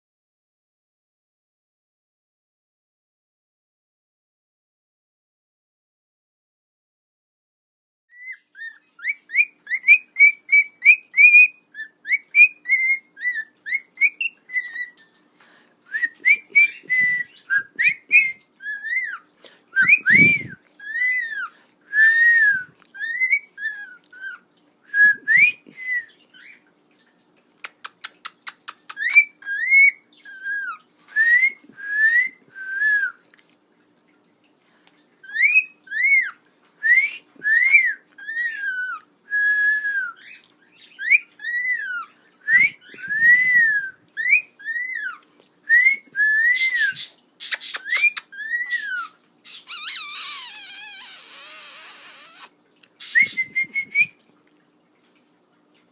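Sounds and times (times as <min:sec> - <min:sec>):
cockatiel whistling: 0:16.0 - 0:19.2, 0:19.8 - 0:24.4, 0:28.9 - 0:32.4, 0:35.3 - 0:36.3, 0:40.9 - 0:54.1.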